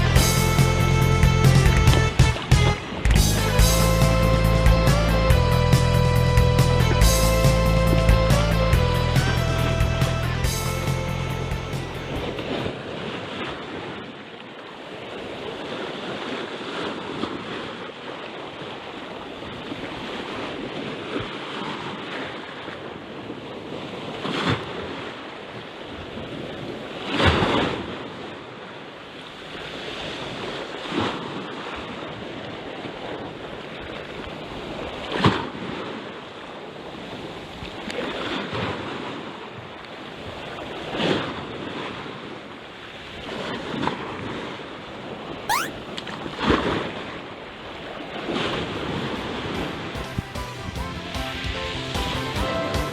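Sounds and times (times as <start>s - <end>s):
sea waves washing on shore: 12.1s - 45.3s, 46.3s - 50.0s.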